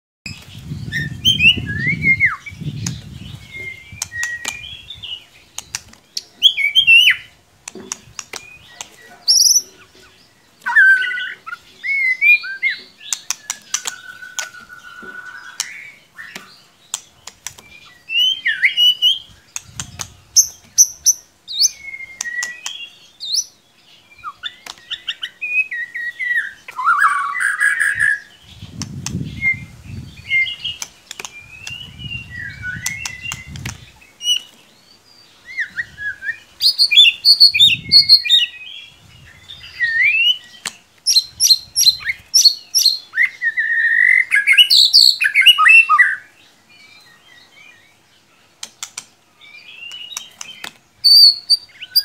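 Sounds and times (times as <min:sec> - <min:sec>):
songbird whistling and chirping: 0:00.3 - 0:48.1, 0:48.9 - 0:52.0
sharp clicks: 0:13.1 - 0:14.6, 0:15.6 - 0:17.7, 0:30.7 - 0:31.9, 0:48.6 - 0:49.2.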